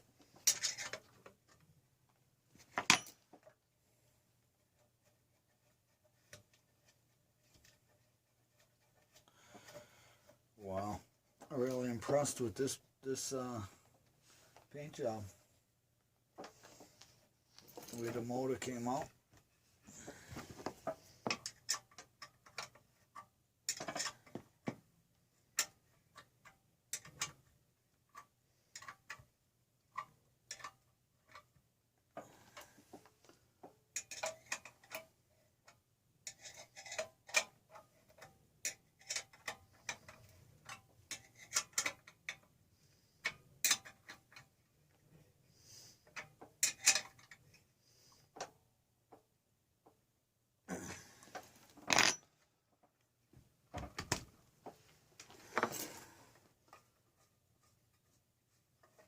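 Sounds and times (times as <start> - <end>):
clicks and taps of small parts: 28.1 - 29.3, 30.0 - 31.5, 32.6 - 42.5, 43.2 - 44.5.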